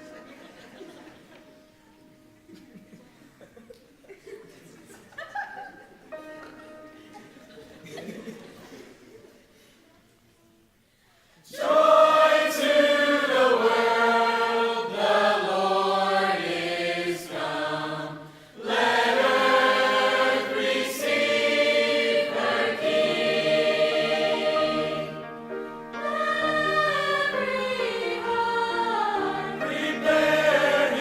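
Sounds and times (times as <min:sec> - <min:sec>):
choir singing in harmony: 0:11.4 - 0:31.0.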